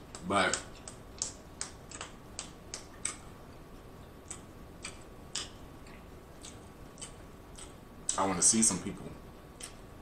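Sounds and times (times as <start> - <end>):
chewing with wet mouth clicks: 0.1 - 3.3, 4.2 - 8.2, 9.6 - 9.8.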